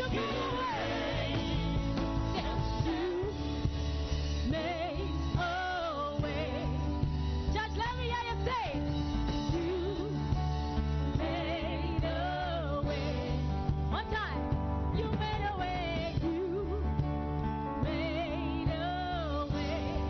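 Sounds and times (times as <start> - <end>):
person singing melismatic lines: 0.0 - 3.4
sustained low bass notes: 0.0 - 20.0.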